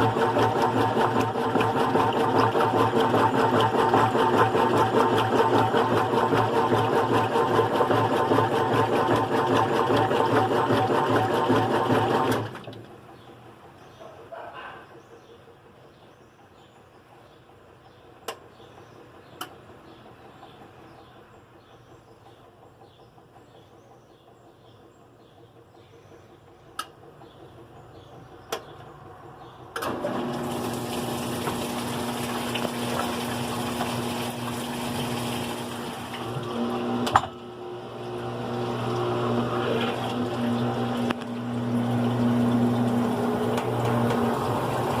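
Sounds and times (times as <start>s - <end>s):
water rushing through washing machine: 0.0s - 13.1s, 29.8s - 45.0s
washing machine clicks: 18.2s - 18.5s, 38.2s - 45.0s.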